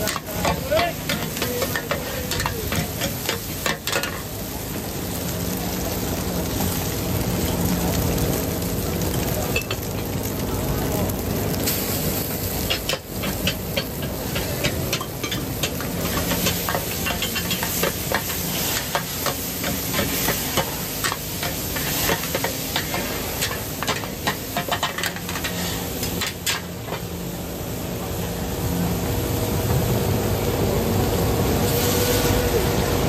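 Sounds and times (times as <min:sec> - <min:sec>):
metal utensil clinking and scraping: 0:00.0 - 0:04.2, 0:12.6 - 0:27.0
food frying in a pan: 0:00.0 - 0:33.0.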